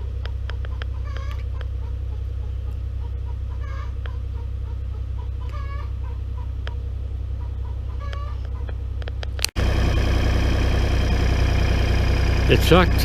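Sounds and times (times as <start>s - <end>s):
steady low hum: 0.0s - 13.0s
hens clucking: 0.2s - 8.8s.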